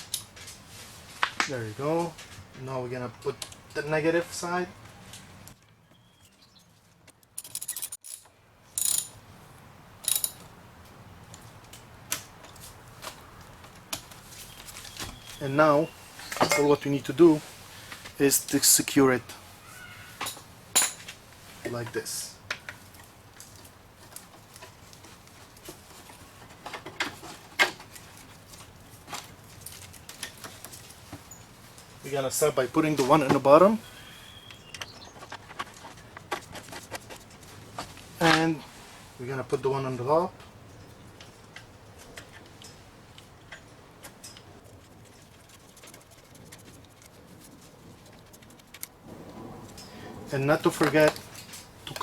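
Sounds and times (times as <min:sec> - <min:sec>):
tools clicking and knocking: 0:07.1 - 0:09.2, 0:10.0 - 0:10.5.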